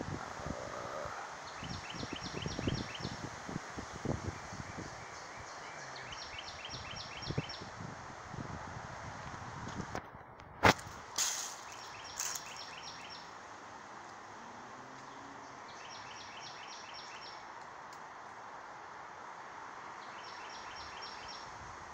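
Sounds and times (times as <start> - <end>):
wind noise: 0.0 - 5.6, 6.6 - 12.4
songbird singing: 0.0 - 7.8, 11.2 - 18.2, 19.8 - 21.6.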